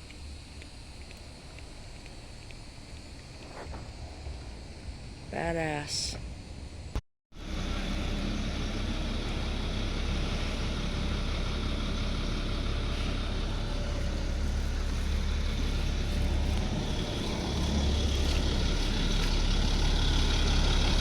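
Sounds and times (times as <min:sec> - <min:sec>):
diesel truck engine rumbling: 0:07.4 - 0:21.0.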